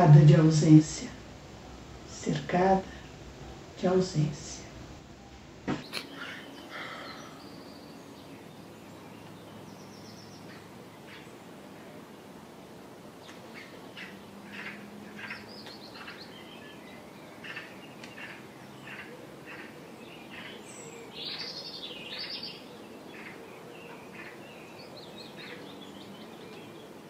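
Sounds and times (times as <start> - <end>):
outdoor background hiss: 0.0 - 27.0
small birds chirping: 0.0 - 27.0.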